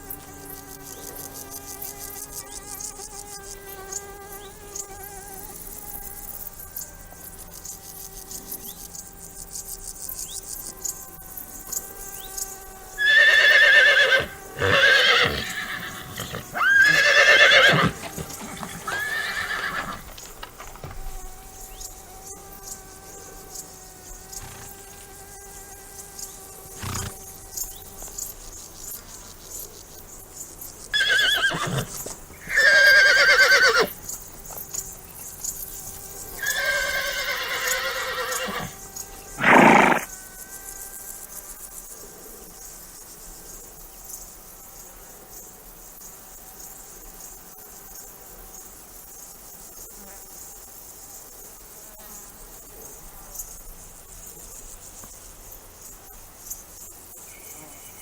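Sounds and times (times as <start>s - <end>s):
horses neighing: 13.0s - 20.9s, 26.8s - 27.2s, 31.0s - 34.0s, 36.4s - 38.8s, 39.4s - 40.1s.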